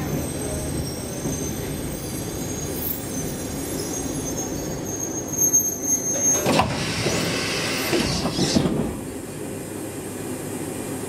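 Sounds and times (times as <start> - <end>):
train running rumble: 0.0 - 4.5
high squeal of wheels or brakes: 0.0 - 8.6.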